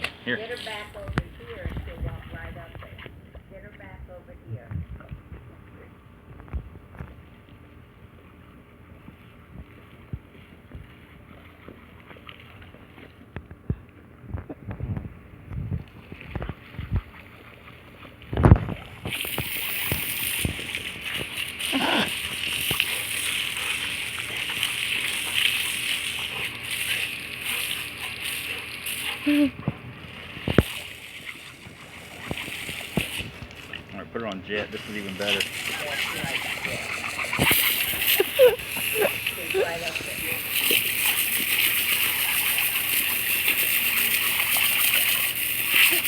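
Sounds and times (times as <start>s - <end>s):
hose spraying water: 0.0s - 2.7s, 18.0s - 46.0s
dog biting at spray: 18.4s - 33.8s, 34.8s - 46.0s.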